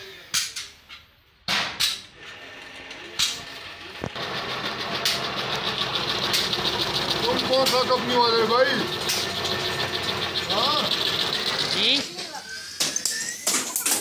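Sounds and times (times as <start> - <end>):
vehicle engine running: 3.9 - 12.0.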